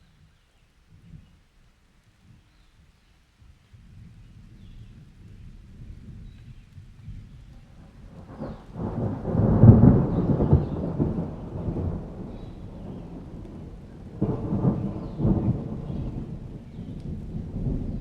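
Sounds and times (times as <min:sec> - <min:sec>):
steady rain: 0:00.0 - 0:18.0
thunder rumbling: 0:04.0 - 0:18.0.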